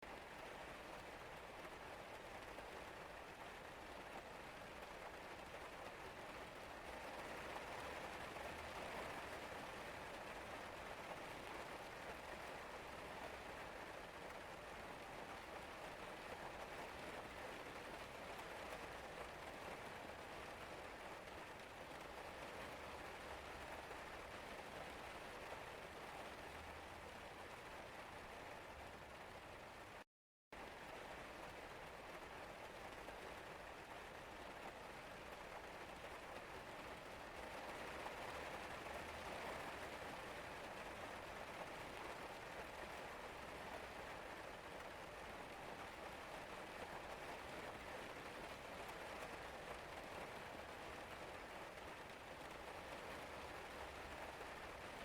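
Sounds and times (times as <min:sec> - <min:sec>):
rain falling: 0:00.0 - 0:30.0, 0:30.6 - 0:55.0.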